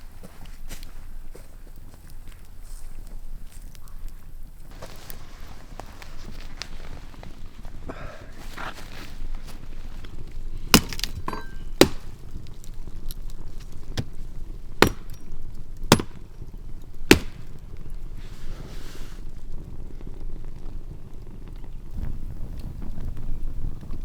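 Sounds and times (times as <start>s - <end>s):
knife chopping on wooden board: 10.8s - 12.1s, 14.8s - 15.1s, 15.9s - 16.2s, 17.1s - 17.5s.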